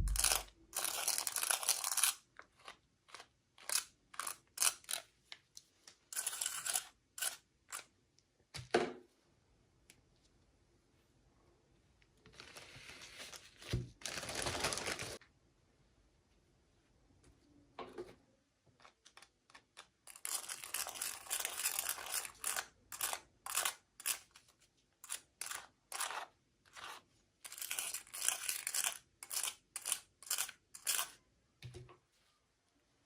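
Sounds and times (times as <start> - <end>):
packaging being torn and crinkled: 13.5 - 15.2.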